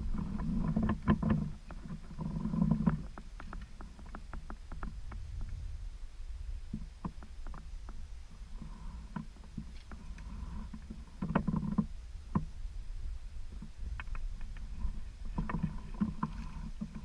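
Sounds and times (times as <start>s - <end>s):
steady low rumble: 3.2s - 11.2s, 11.9s - 17.0s.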